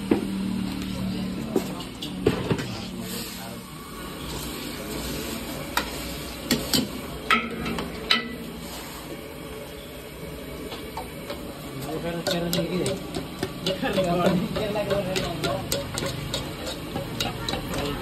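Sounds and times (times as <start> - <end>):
chicken frying in a wok: 0.0 - 18.0
metal ladle scraping a pan: 12.2 - 18.0.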